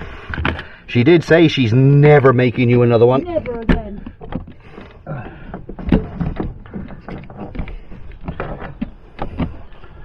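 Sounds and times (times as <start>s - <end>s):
knocks and clatter: 5.2s - 9.7s.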